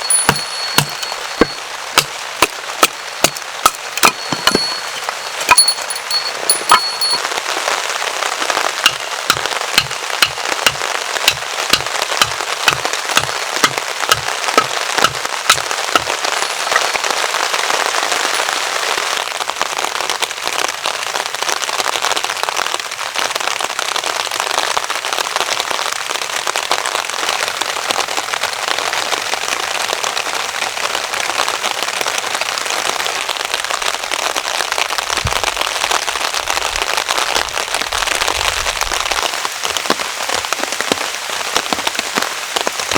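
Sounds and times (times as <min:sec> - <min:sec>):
sharp knocks: 0:00.0 - 0:07.2, 0:08.8 - 0:16.9
heavy rain on a tarp: 0:07.2 - 0:42.9.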